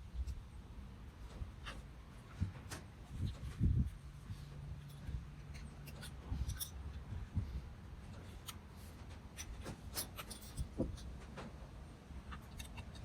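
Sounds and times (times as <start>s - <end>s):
light clicks and rubbing: 1.2s - 11.6s.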